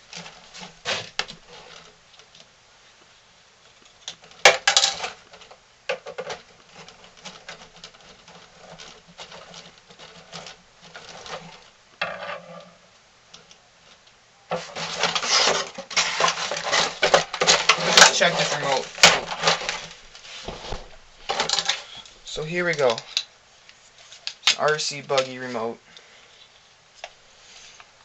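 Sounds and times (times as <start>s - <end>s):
packaging rustling and clicking: 0.0s - 2.5s, 3.7s - 11.8s, 13.3s - 23.3s.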